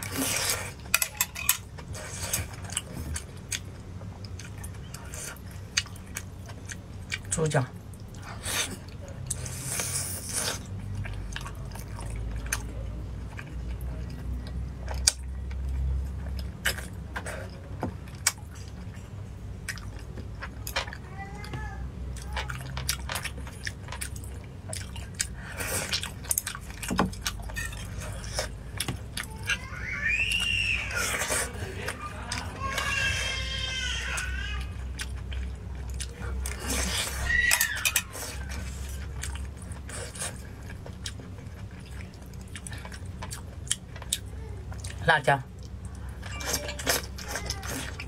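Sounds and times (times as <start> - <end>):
wet chewing and lip-smacking: 19.6 - 21.0, 22.1 - 29.6, 34.8 - 48.0.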